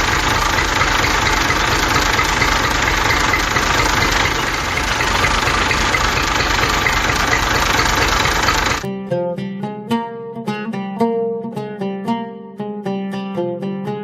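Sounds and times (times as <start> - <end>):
toy tractor motor rattling: 0.0 - 8.9.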